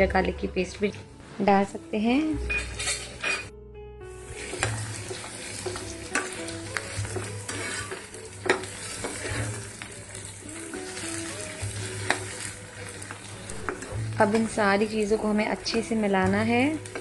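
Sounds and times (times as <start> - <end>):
vegetables sizzling in butter: 4.2 - 17.0.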